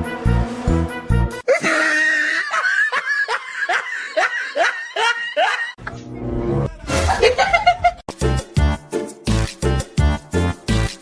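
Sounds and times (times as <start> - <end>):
music with steady bass beat: 8.1 - 11.0.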